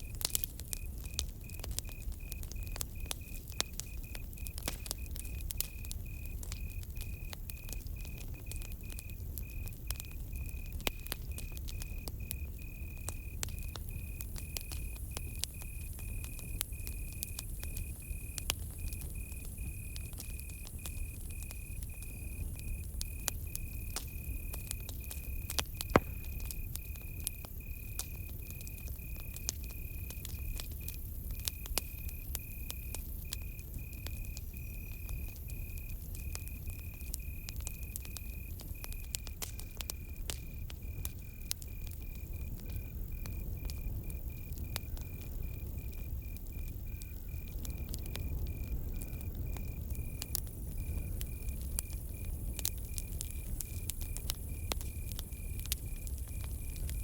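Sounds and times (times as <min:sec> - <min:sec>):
campfire crackling and popping: 0:00.0 - 0:57.0
cricket trilling: 0:00.0 - 0:57.0.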